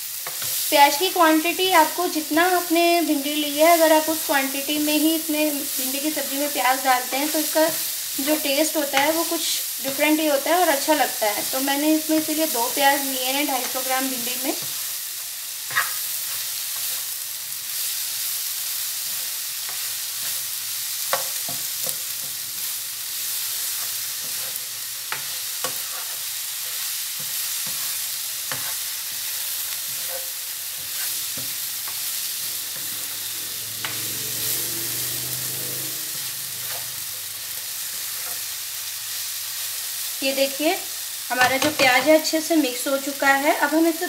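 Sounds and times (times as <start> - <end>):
vegetables sizzling in oil: 0.0 - 44.0
spatula scraping and tapping pan: 0.2 - 0.6, 8.6 - 10.2, 13.4 - 14.9, 15.7 - 17.2, 19.0 - 22.7, 23.6 - 33.2, 35.5 - 37.2, 37.8 - 38.5, 41.4 - 42.2.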